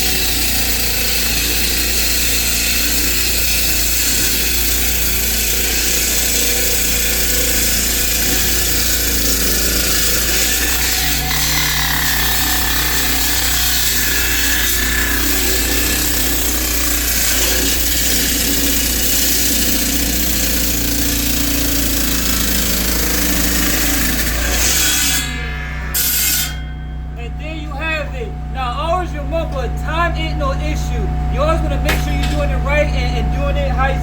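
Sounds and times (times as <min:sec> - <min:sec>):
concrete saw cutting concrete: 0:00.0 - 0:27.1.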